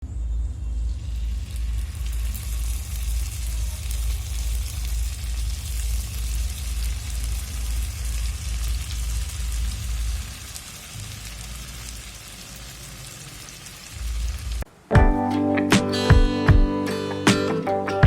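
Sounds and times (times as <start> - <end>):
fish sizzling in hot oil: 1.2 - 14.7.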